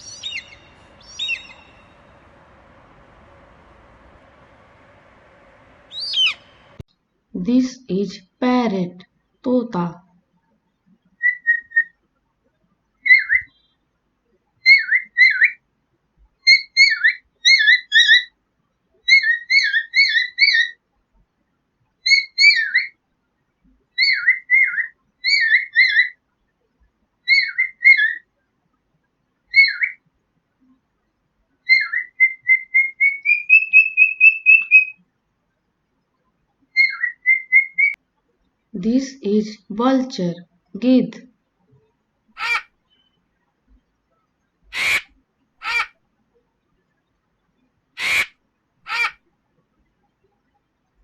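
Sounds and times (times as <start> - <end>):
parrot whistling: 0.0 - 6.8, 31.7 - 35.0, 36.8 - 38.0, 44.7 - 45.0, 48.0 - 48.3.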